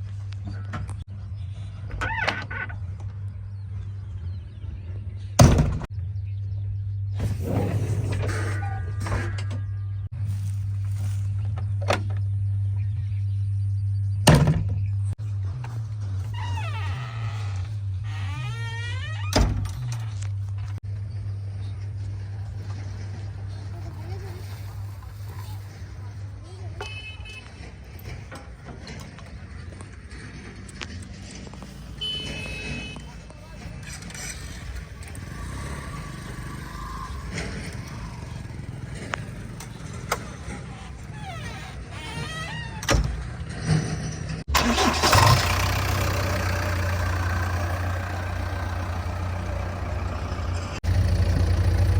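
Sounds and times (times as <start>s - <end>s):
diesel engine rumbling: 0.0s - 51.9s
diesel engine running: 20.5s - 26.6s, 30.8s - 41.3s, 44.4s - 51.9s.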